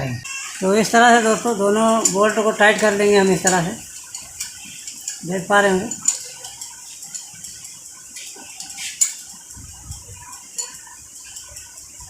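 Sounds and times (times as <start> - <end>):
spanner clinking on bolts: 1.9 - 7.8.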